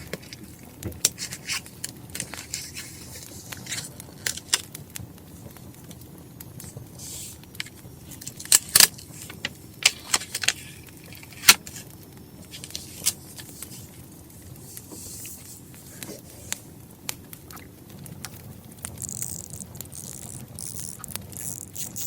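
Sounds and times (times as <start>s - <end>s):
handling paper and stationery: 0.0s - 4.7s, 6.6s - 16.8s
wood fire crackling: 0.0s - 22.0s.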